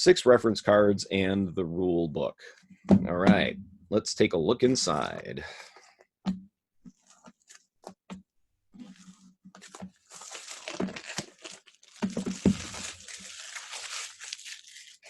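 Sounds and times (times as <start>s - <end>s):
plastic wrapping crinkling and tearing: 7.0s - 7.7s, 8.8s - 15.0s.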